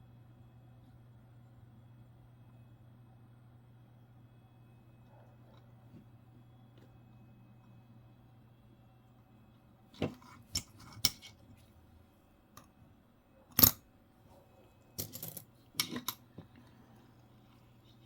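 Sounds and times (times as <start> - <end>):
coins clicking and clinking: 13.6 - 13.8, 15.0 - 16.2.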